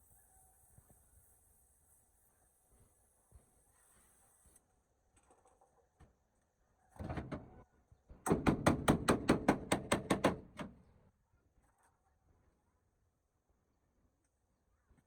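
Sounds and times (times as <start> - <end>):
rapid sharp knocks: 8.3 - 10.7.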